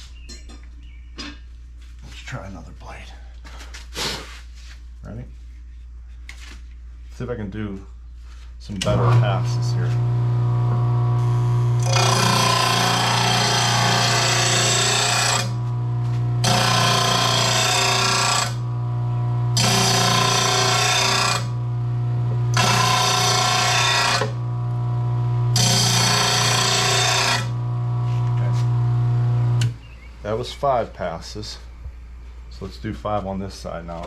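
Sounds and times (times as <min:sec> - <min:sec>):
blade grinding on wheel: 0:08.8 - 0:29.7
grinding wheel motor humming: 0:08.8 - 0:29.8.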